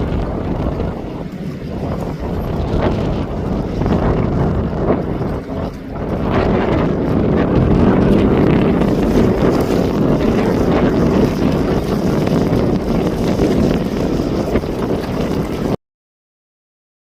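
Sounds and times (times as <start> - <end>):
jet engines roaring: 0.0 - 15.8
wind buffeting microphone: 0.0 - 15.8.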